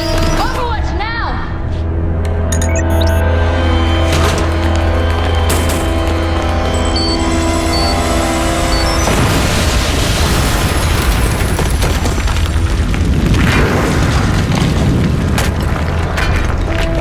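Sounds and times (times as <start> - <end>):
soundtrack music: 0.0 - 10.4
explosion blast rumbling: 3.7 - 17.0.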